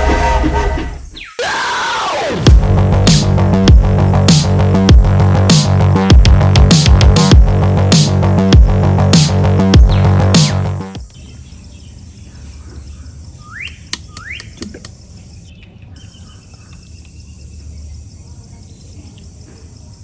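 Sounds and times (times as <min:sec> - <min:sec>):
steady low hum: 0:02.5 - 0:15.5
sharp clicks: 0:13.6 - 0:15.0.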